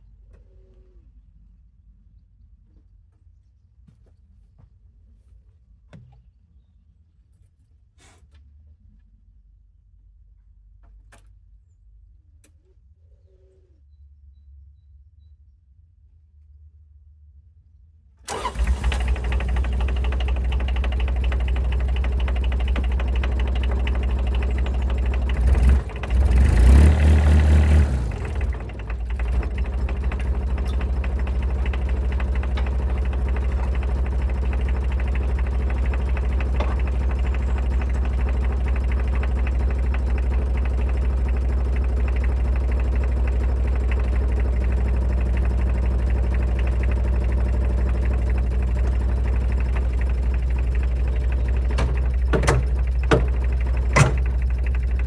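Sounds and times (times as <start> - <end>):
dumper engine running: 18.3 - 55.0.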